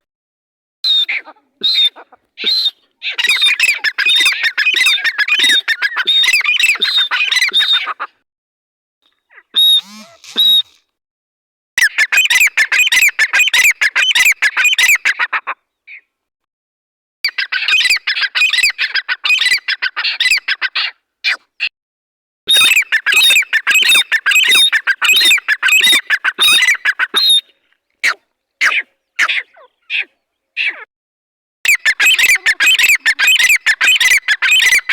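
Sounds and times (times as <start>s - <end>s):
francolin calling: 9.6s - 10.8s.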